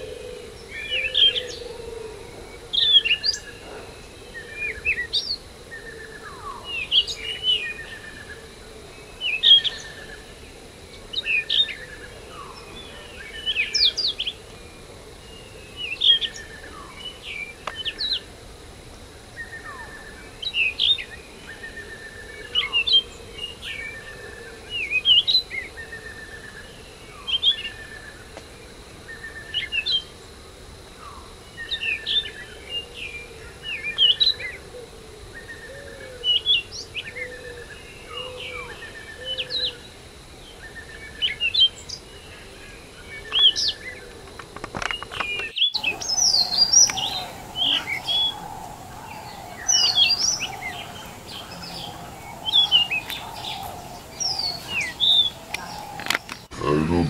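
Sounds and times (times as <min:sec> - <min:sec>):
birds chirping and singing: 0:44.8 - 0:57.0
steady drone: 0:45.8 - 0:57.0.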